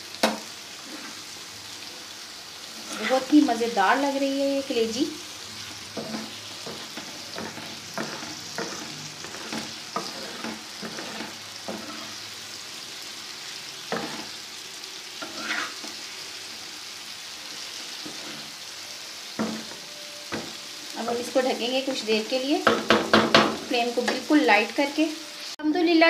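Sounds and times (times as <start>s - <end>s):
food sizzling in a pan: 0.0s - 26.0s
spatula scraping and knocking pan: 2.8s - 3.5s, 5.9s - 12.2s, 13.9s - 14.4s, 15.2s - 16.0s, 18.0s - 18.6s, 19.4s - 21.3s, 22.6s - 24.3s.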